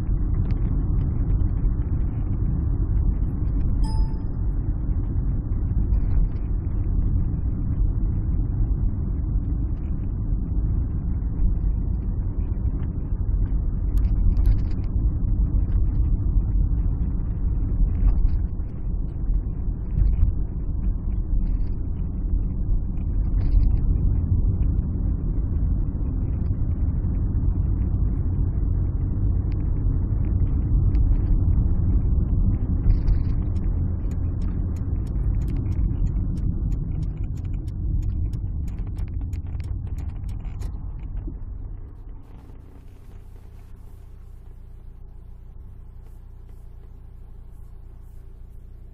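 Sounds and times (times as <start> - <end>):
car engine and road rumble: 0.0 - 48.9
light ticks: 32.8 - 41.4.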